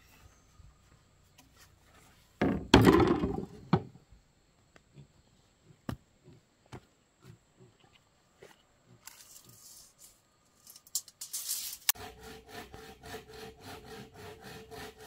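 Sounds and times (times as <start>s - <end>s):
sharp wooden knocks: 2.4s - 3.9s
wood clattering: 2.4s - 4.0s.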